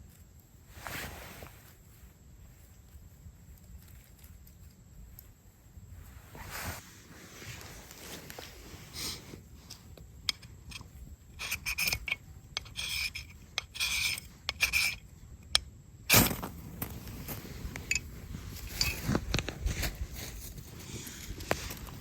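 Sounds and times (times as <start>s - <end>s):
light clicks and clinks: 17.7s - 19.6s.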